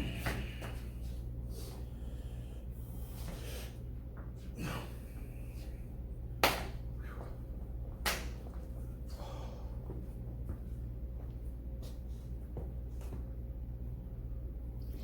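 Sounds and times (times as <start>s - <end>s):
low hum: 0.0s - 15.0s
sharp slaps: 6.4s - 6.8s, 8.0s - 8.4s.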